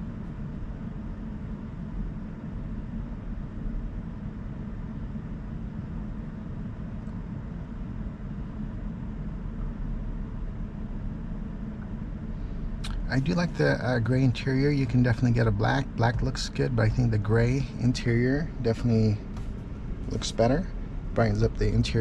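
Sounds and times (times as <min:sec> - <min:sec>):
road and tyre rumble: 0:08.4 - 0:22.0.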